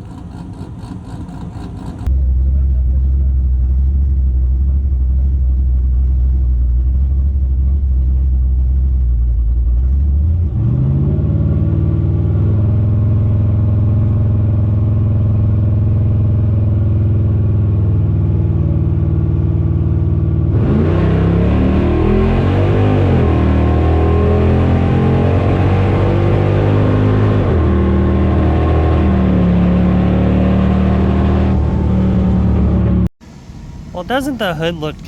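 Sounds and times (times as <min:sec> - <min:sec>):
car engine running: 0:00.0 - 0:10.4, 0:31.5 - 0:35.0.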